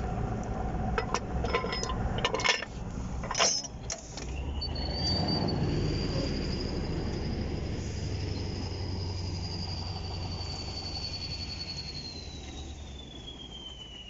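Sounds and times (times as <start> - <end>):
engine running low: 0.0 - 14.0
sharp clinks and knocks: 0.9 - 4.0.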